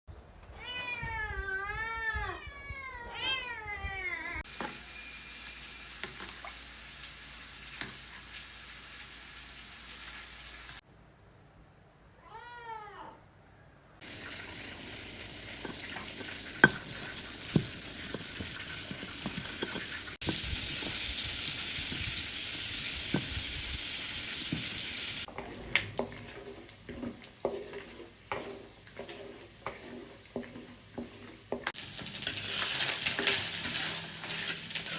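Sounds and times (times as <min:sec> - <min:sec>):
cat meowing: 0:00.6 - 0:04.4
food sizzling in a pan: 0:04.4 - 0:10.8, 0:14.0 - 0:34.9
stirring clicks and scrapes: 0:14.1 - 0:22.4, 0:24.3 - 0:34.9
clinks and scrapes in a pan: 0:15.3 - 0:21.0, 0:24.4 - 0:34.9.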